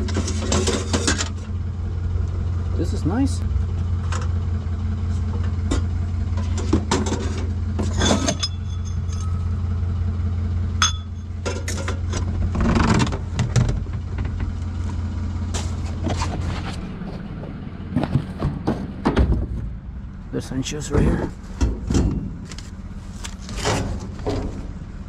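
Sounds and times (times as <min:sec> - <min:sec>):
clinks and rattles of items: 0:00.0 - 0:01.5, 0:05.4 - 0:09.6, 0:10.8 - 0:14.5
vehicle engine idling: 0:00.0 - 0:25.0.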